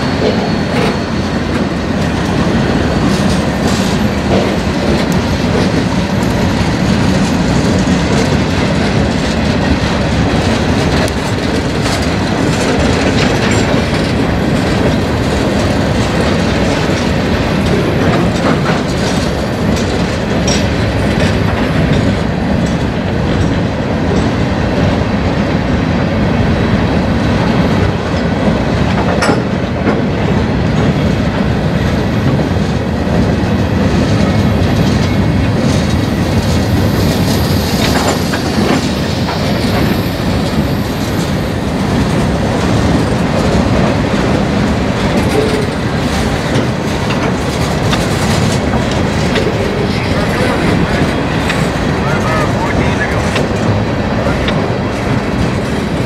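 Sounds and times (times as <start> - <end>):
high wheel squeal: 0.0 - 5.4
freight train rolling past: 0.0 - 56.0.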